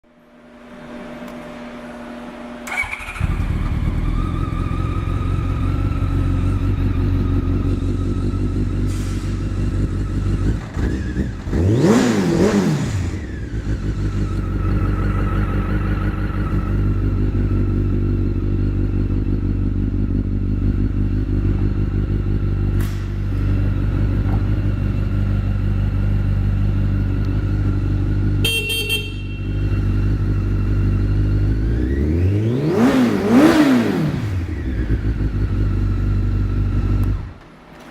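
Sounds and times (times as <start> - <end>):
motorcycle engine idling: 2.7 - 11.6, 13.0 - 32.1, 34.3 - 37.4.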